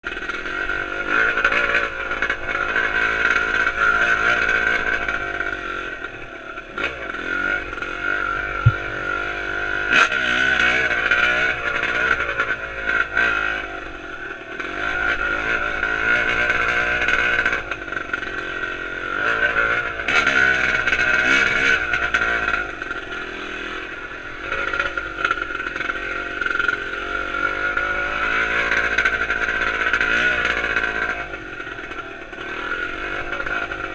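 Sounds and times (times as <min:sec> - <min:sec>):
dirt bike engine revving: 0:00.2 - 0:33.9
sharp knock: 0:08.6 - 0:09.0.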